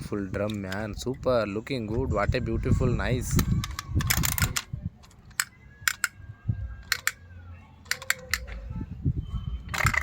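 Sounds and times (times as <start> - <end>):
plastic toys clicking and tapping: 0.4 - 1.3, 3.2 - 6.2, 6.8 - 8.7, 9.7 - 10.0.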